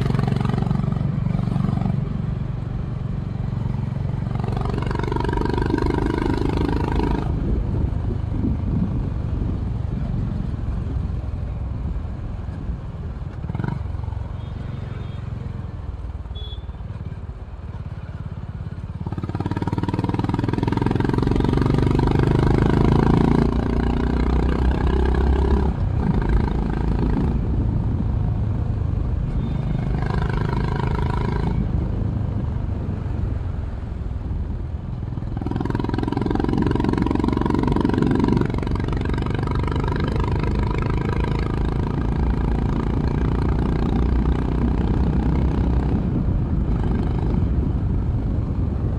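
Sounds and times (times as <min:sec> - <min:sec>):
motorcycle engine running: 0:35.0 - 0:48.9.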